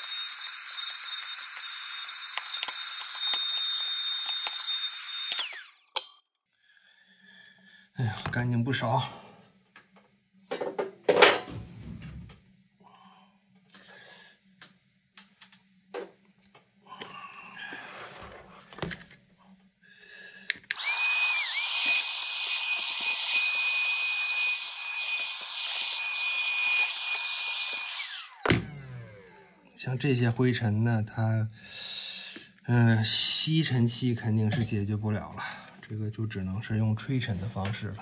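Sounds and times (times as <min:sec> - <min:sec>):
vacuum cleaner whining: 0:00.0 - 0:06.0, 0:20.6 - 0:29.8.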